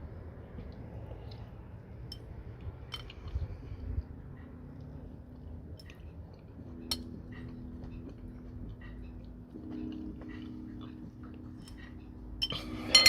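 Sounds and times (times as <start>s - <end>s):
steady low rumble: 0.0s - 13.0s
chewing: 2.5s - 12.8s.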